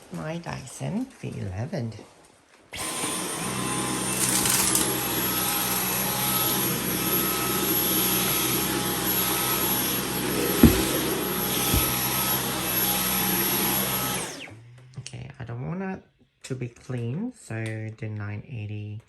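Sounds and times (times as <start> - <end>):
vacuum cleaner running: 2.8 - 14.5
low thump: 10.6 - 12.0.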